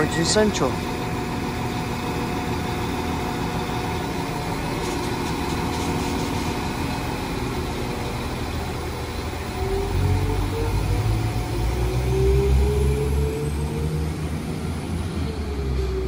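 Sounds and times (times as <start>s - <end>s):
deep train rumble: 0.0s - 16.0s
train diesel engines humming: 0.0s - 16.0s.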